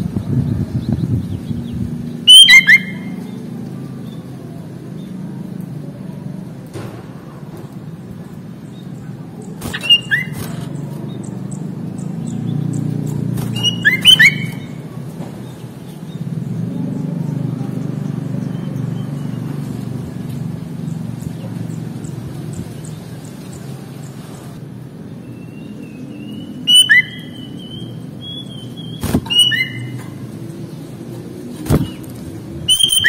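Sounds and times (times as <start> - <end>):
low traffic rumble: 0.0 - 33.0
bird bubbly call notes: 2.3 - 3.2, 13.6 - 14.7, 28.9 - 29.9.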